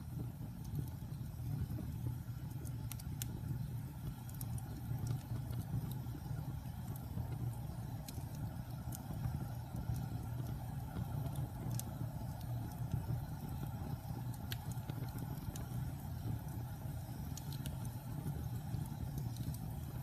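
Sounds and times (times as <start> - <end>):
fire crackles and pops: 0.0 - 20.0
fire flames rumbling: 0.0 - 20.0.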